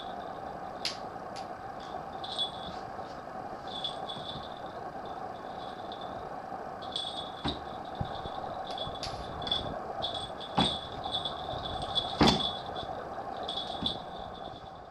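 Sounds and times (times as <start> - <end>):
steady hum: 0.0 - 14.9
sharp knocks: 12.2 - 12.5.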